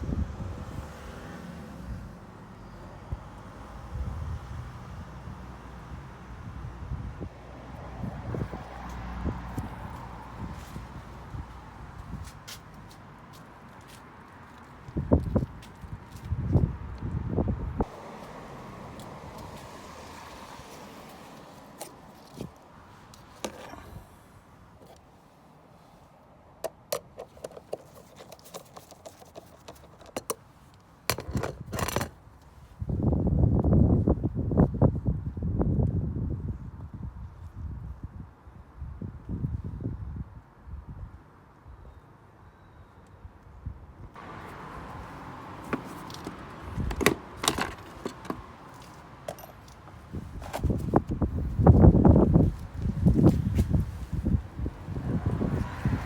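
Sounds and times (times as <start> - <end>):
scraping rustle: 27.2 - 31.8.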